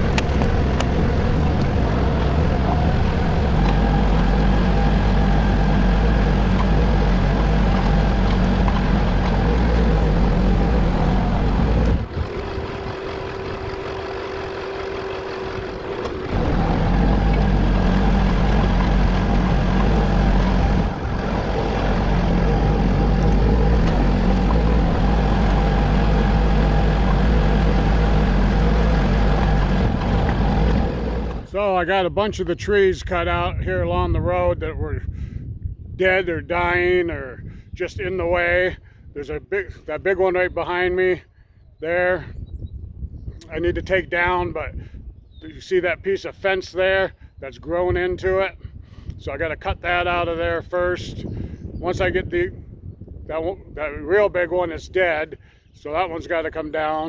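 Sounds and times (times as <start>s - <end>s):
tractor engine running: 0.0s - 34.2s.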